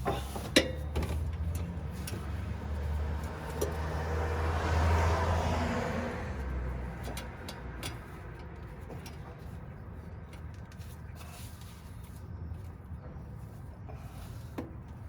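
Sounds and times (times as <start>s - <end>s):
vehicle passing: 1.2s - 8.6s.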